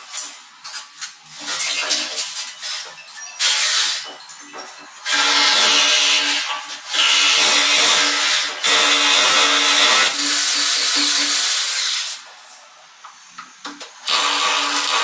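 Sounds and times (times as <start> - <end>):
electric power drill running: 5.1 - 11.9, 14.0 - 15.0.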